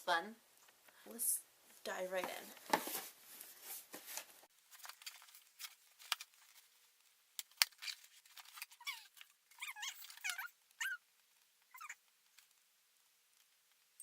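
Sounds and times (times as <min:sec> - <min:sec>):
pet whining: 0:08.8 - 0:11.0, 0:11.7 - 0:12.0.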